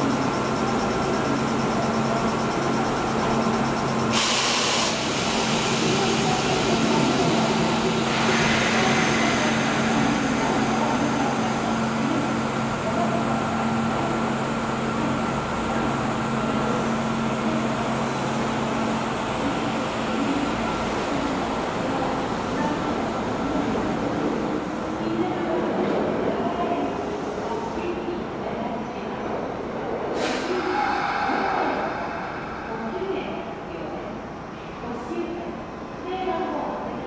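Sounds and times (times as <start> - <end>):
electric train hum: 29.1 - 36.6.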